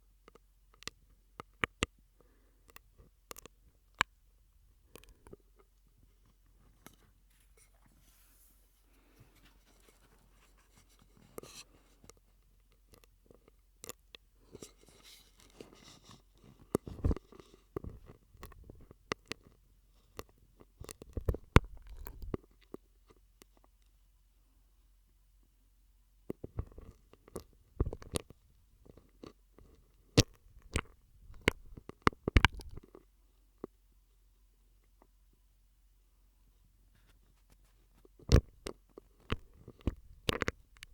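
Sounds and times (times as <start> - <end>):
mouth clicks and pops through straw: 16.7 - 19.4, 20.2 - 22.5, 26.3 - 29.4, 30.2 - 33.0, 38.2 - 40.9.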